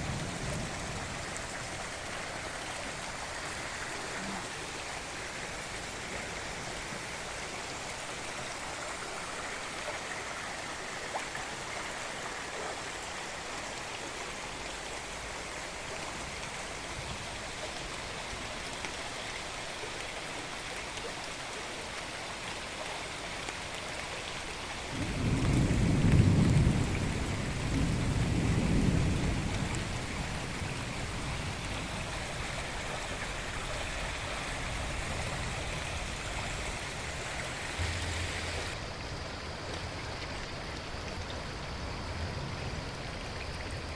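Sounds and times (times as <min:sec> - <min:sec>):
thunder rumbling: 0:00.0 - 0:01.6, 0:24.9 - 0:32.8, 0:34.6 - 0:38.8
rain hissing: 0:00.0 - 0:11.1, 0:24.8 - 0:39.0
flowing river water: 0:00.0 - 0:43.9.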